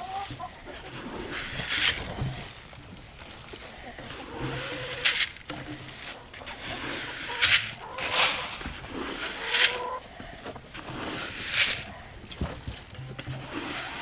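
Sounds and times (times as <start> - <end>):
chickens calling: 0.0 - 14.0
short scuffing noises: 7.4 - 8.8.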